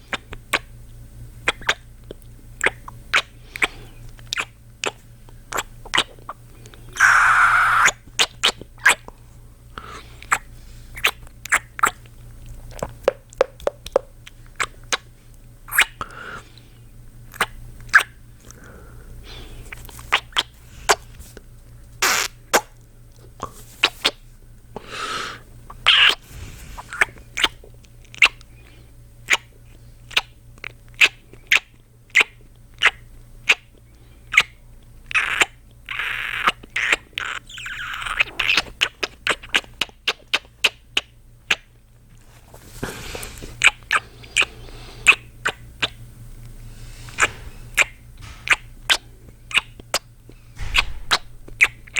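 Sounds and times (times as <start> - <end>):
man's lips smacking kisses: 1.5 - 6.4, 11.0 - 12.0, 12.7 - 15.0, 19.7 - 21.0, 47.2 - 50.0, 50.6 - 51.9
breathy sounds: 18.4 - 19.9.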